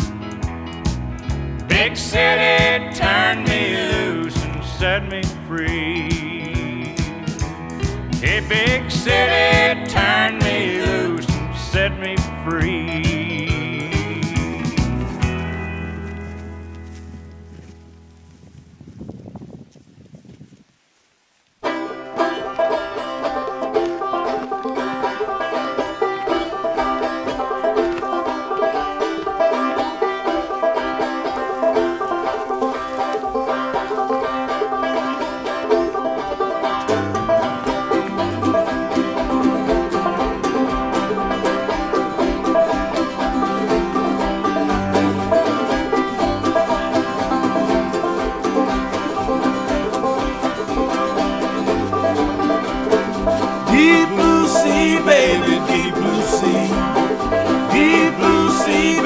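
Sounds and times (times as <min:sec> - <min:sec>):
banjo-led bluegrass instrumental: 0:00.0 - 0:17.9, 0:21.6 - 0:59.0
steady low beat: 0:50.8 - 0:59.0.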